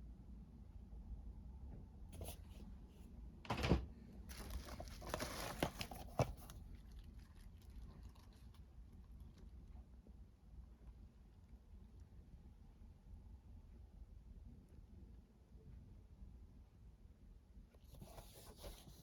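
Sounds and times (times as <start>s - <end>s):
packaging rustling and crinkling: 4.3s - 7.1s.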